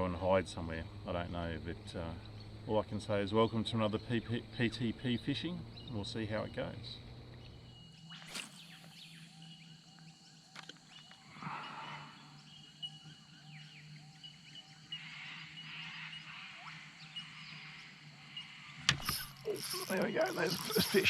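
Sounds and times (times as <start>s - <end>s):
birds chirping: 0.0s - 21.0s
sharp click: 18.9s - 21.0s.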